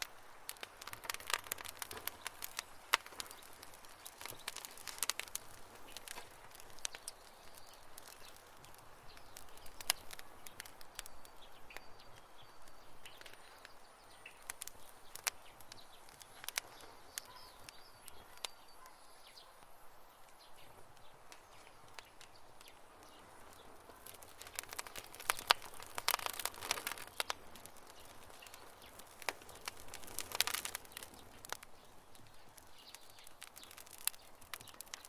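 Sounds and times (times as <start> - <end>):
campfire crackling and popping: 0.0 - 35.0.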